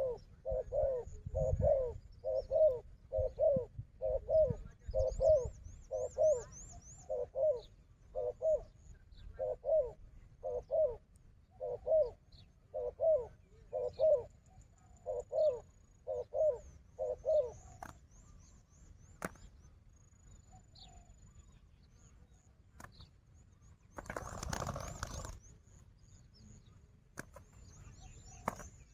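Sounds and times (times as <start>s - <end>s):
dove cooing: 0.0s - 18.0s, 24.0s - 25.4s.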